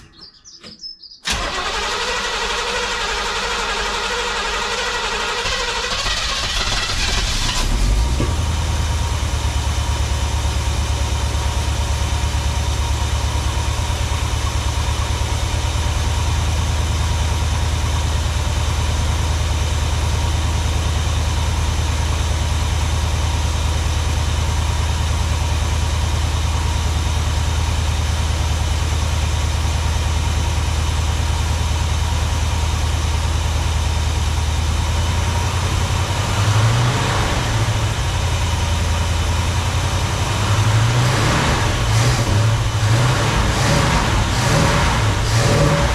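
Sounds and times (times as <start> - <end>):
engine starting and idling: 0.6 - 12.4.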